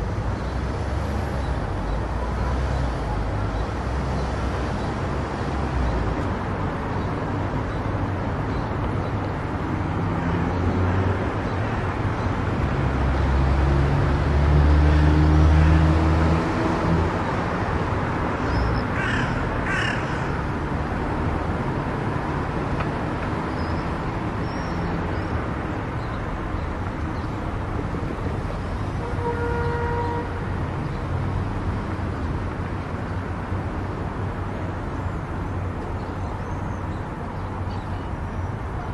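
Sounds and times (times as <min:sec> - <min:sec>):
car road and tyre noise: 0:00.0 - 0:38.9
harsh crow-like calls: 0:18.5 - 0:20.7.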